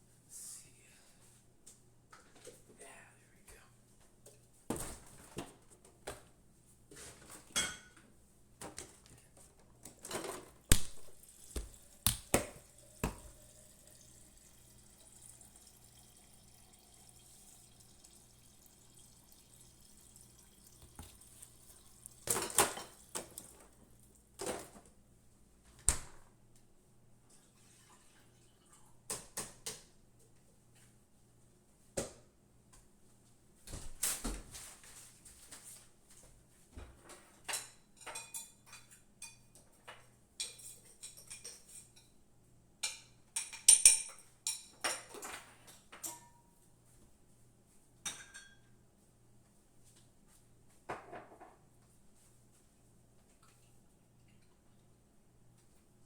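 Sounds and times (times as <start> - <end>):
dishes and utensils clinking: 7.2 - 8.0, 19.8 - 23.7, 37.5 - 39.7, 40.4 - 42.1, 42.8 - 46.5, 48.1 - 48.7
tap water running: 10.6 - 24.3, 27.4 - 28.7.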